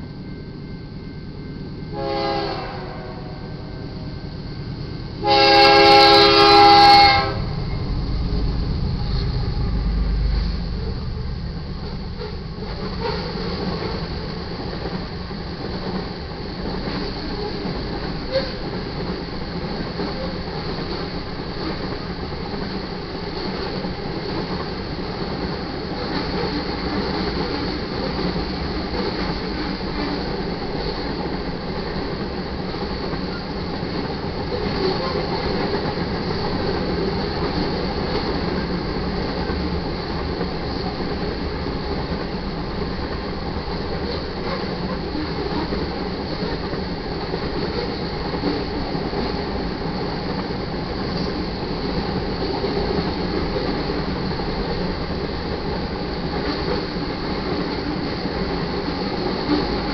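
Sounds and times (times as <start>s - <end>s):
deep locomotive engine rumble: 0.0s - 59.9s
locomotive horn blasts: 1.9s - 4.2s, 5.2s - 7.8s
wheels clacking on rail joints: 5.3s - 59.9s.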